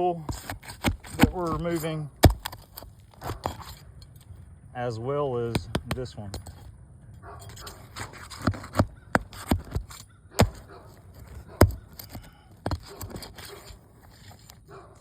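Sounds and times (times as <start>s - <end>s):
roof shingles snapping and scraping: 0.0s - 3.9s, 7.5s - 15.0s.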